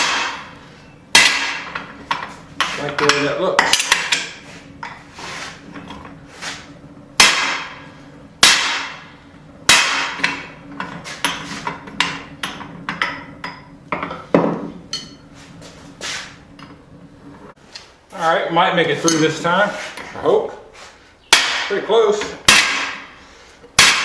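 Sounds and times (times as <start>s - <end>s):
hammer striking metal punch ringing: 0.0s - 5.0s, 7.2s - 7.8s, 8.4s - 9.1s, 9.7s - 10.5s.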